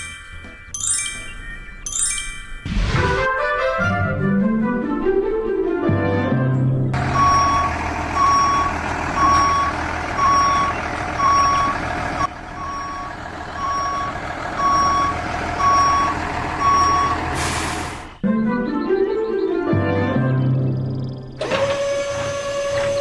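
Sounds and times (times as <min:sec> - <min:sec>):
music: 0:00.0 - 0:07.3, 0:18.2 - 0:21.5
reversing alarm beeping: 0:07.0 - 0:18.2.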